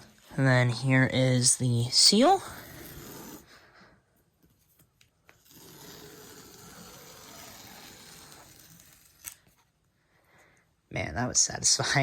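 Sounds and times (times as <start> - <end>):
seal strip tearing off cardboard: 5.3 - 9.6.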